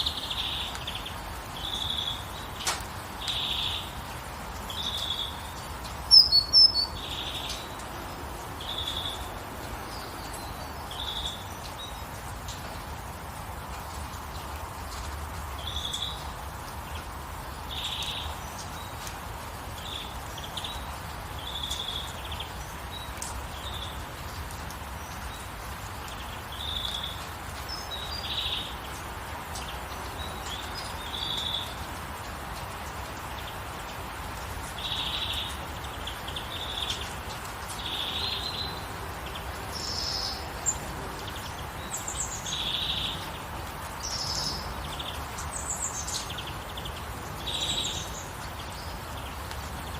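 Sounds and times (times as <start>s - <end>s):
birds chirping: 0.0s - 12.3s
gentle rain hiss: 0.0s - 49.9s.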